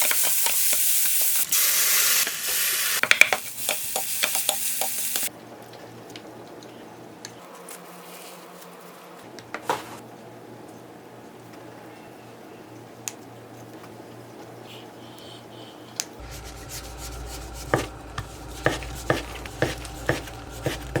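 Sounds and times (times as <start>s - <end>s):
sizzling hiss with crackles: 0.0s - 5.3s, 16.2s - 21.0s.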